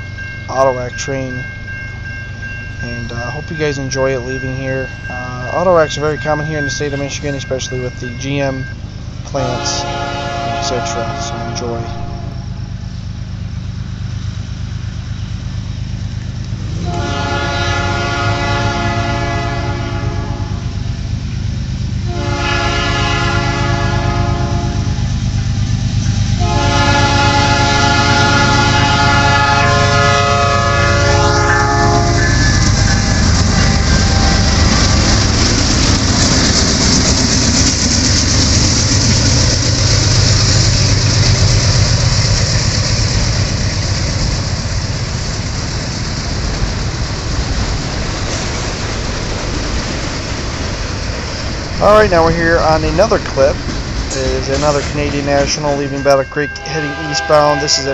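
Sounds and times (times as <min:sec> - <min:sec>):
train wheels rumbling on rails: 0:00.0 - 0:57.9
locomotive air horn blasts: 0:09.3 - 0:12.6, 0:16.7 - 0:20.8, 0:22.0 - 0:25.0, 0:26.4 - 0:35.0, 0:55.4 - 0:57.9.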